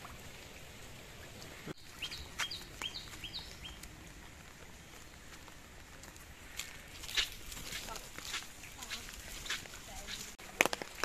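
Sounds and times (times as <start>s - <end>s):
faint outdoor background: 0.0s - 11.0s
bird chirping: 1.8s - 3.9s.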